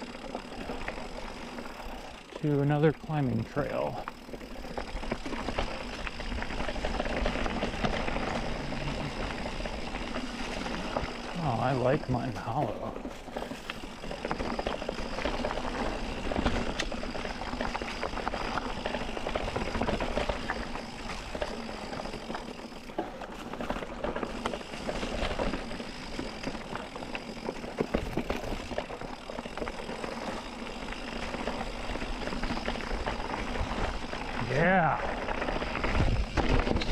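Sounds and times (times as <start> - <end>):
bike rattling and knocking: 0.0 - 36.9
bike tyre noise on dirt: 0.0 - 36.9.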